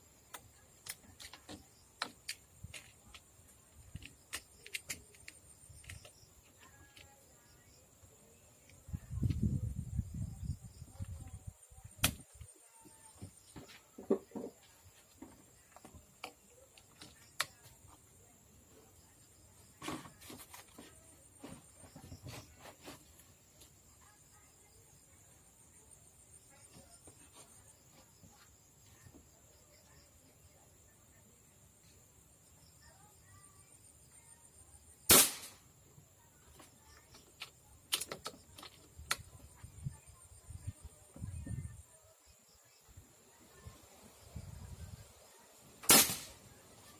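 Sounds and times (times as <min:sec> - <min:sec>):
rifle shot: 0:35.1 - 0:35.6, 0:45.8 - 0:46.4.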